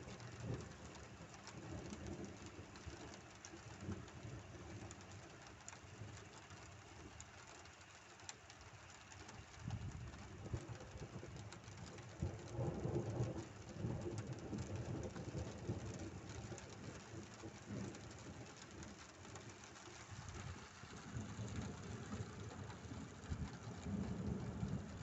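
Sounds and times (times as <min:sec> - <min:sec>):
heavy rain falling: 0:00.0 - 0:25.0
thunder rumbling: 0:09.7 - 0:25.0.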